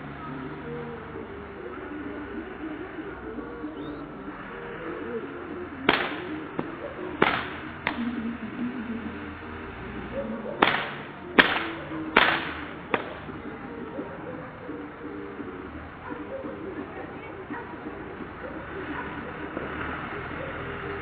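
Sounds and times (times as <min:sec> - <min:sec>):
sharp cracks: 0:05.8 - 0:08.1, 0:10.6 - 0:13.4.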